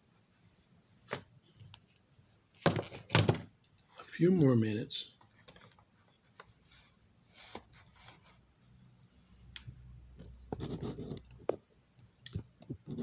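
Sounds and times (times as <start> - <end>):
rustling and scraping: 5.2 - 8.4, 10.1 - 11.7.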